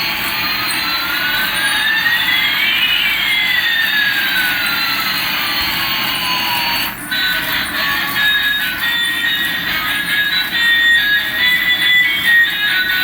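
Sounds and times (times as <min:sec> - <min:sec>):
whistling tones rising and falling: 0:00.0 - 0:07.1.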